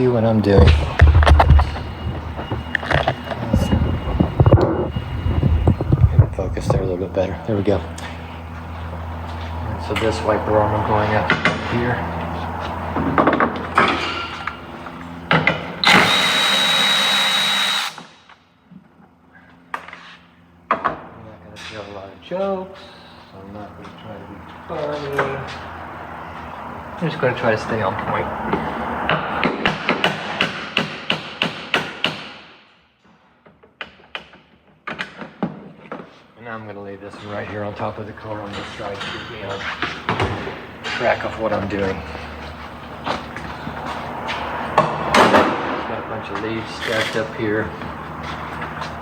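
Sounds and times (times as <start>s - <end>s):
power tool whining: 13.7s - 18.2s.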